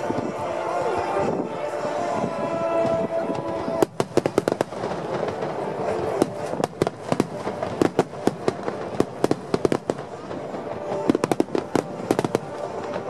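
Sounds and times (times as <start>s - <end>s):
music playing: 0.0s - 13.0s
fireworks cracking: 2.8s - 13.0s.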